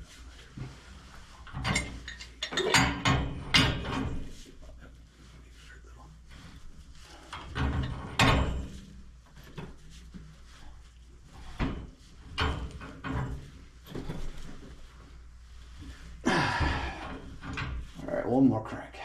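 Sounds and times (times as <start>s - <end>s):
pipe wrench scraping clunks: 1.5s - 4.3s.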